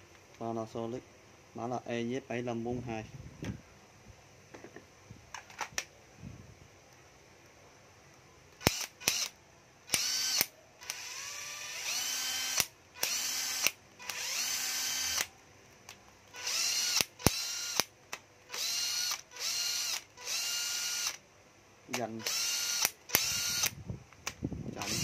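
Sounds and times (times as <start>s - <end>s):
cordless drill motor whining: 8.6s - 9.3s, 9.9s - 15.3s, 16.3s - 17.9s, 18.5s - 21.2s, 22.2s - 23.8s, 24.7s - 25.0s
drill sharp clicks: 8.6s - 15.3s, 16.3s - 21.2s, 21.9s - 25.0s.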